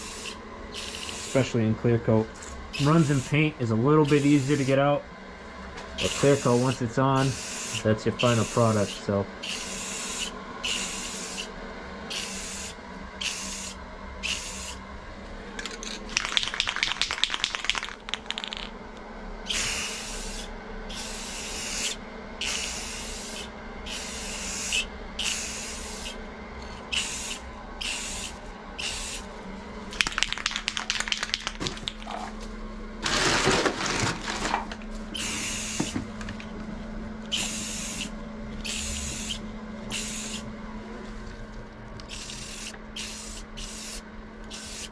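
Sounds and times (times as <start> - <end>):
aerosol spray can hissing: 0.0 - 1.4, 2.8 - 3.4, 12.1 - 14.8, 19.5 - 26.2, 26.9 - 29.2, 42.1 - 44.9
spray can rattling when shaken: 16.1 - 18.7, 30.0 - 32.0.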